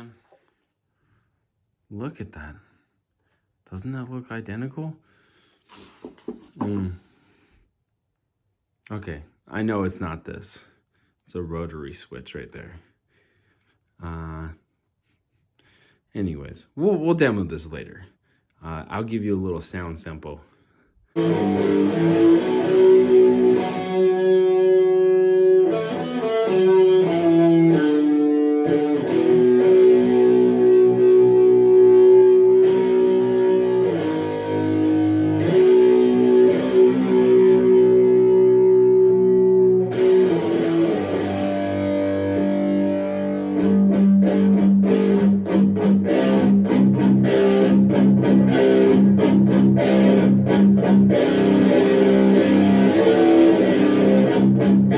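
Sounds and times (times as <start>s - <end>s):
distorted electric guitar: 0.0s - 0.5s, 21.2s - 54.9s.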